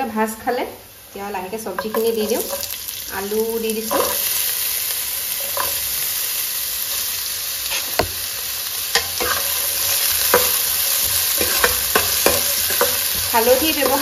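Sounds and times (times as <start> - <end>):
vegetables sizzling in hot oil: 0.0 - 14.0
metal spatula knocking on pan: 1.8 - 2.6, 8.0 - 8.2, 9.0 - 14.0.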